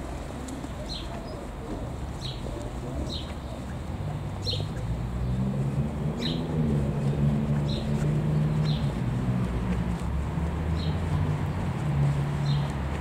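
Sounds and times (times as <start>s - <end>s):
engine humming: 0.0s - 13.0s
small bird chirping: 6.2s - 9.0s.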